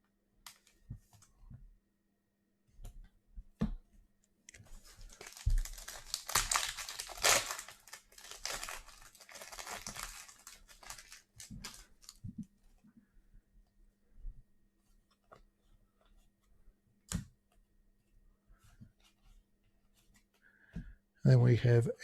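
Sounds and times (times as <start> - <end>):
wrapper torn and crinkled: 5.1 - 12.2.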